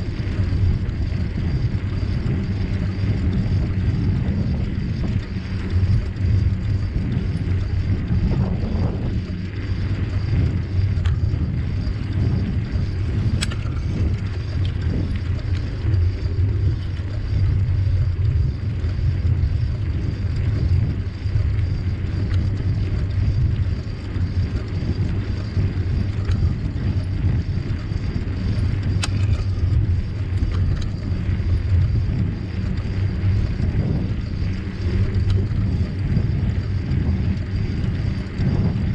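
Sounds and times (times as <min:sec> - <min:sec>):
bicycle tyres rolling: 0:00.0 - 0:38.9
wind on microphone: 0:00.0 - 0:38.9.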